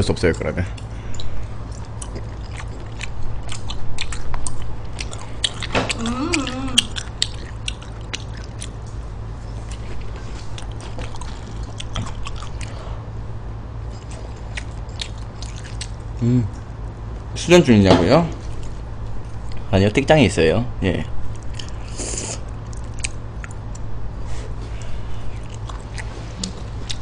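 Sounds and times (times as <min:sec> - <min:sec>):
steady low hum: 0:00.0 - 0:27.0
wet chewing mouth clicks: 0:01.1 - 0:08.9, 0:09.6 - 0:12.8, 0:14.5 - 0:16.7
person humming: 0:05.9 - 0:07.0, 0:16.2 - 0:16.5.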